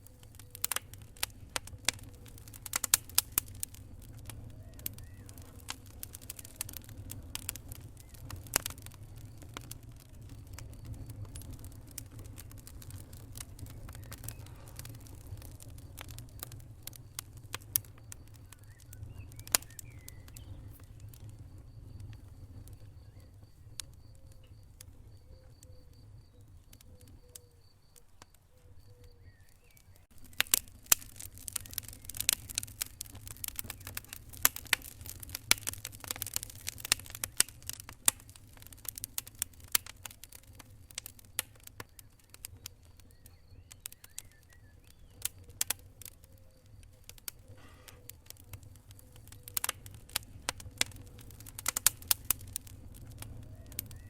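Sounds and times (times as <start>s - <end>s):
fire crackling and popping: 0.0s - 54.0s
low rumble of flames: 0.0s - 54.0s.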